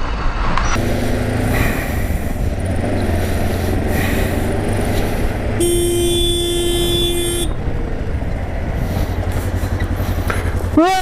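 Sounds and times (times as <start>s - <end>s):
motorcycle running in traffic: 0.7s - 11.0s
vehicle horn blaring: 5.6s - 7.7s, 10.8s - 11.0s.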